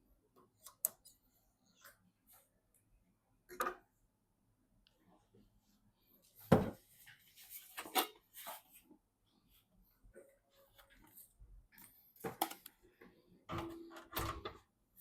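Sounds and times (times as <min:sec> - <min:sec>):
rustling and scraping: 0:06.2 - 0:09.0.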